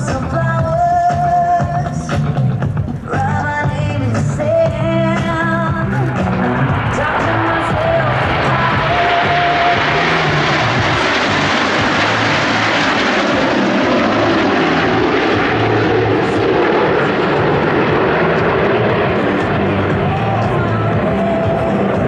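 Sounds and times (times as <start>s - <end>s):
airplane engine rush: 0.0s - 22.0s.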